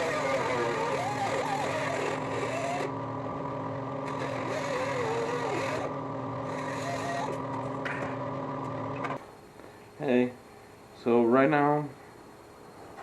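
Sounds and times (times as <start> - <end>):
machine humming: 0.0 - 9.9.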